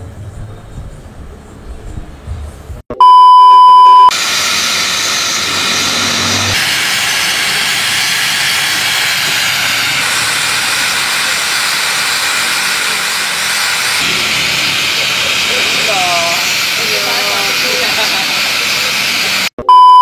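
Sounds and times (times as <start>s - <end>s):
loud electronic beep: 2.9s - 9.5s, 19.5s - 20.0s
steady loud hiss: 4.1s - 19.5s.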